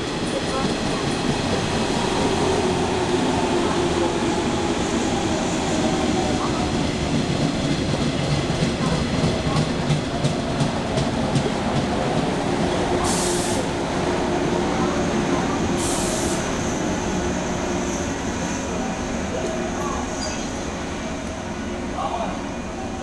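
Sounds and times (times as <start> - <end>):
air hiss bursts: 13.0 - 13.7, 15.7 - 16.6.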